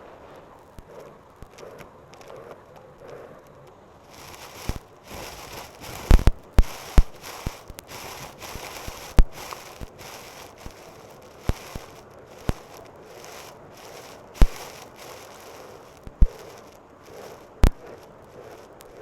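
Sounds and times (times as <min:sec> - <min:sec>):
debris crackling and popping: 0:04.1 - 0:19.0.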